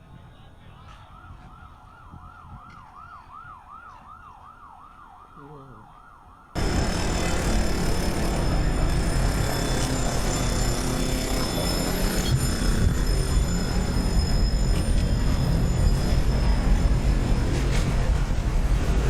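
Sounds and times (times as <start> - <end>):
emergency siren yelping: 1.1 - 6.8
loud steady rushing noise: 6.6 - 19.0.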